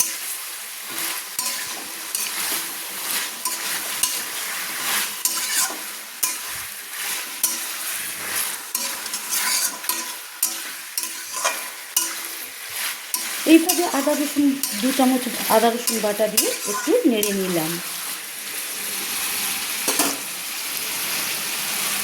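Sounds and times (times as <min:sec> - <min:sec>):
spatula scraping pan: 0:00.0 - 0:18.2
chicken sizzling in hot oil: 0:00.0 - 0:22.0.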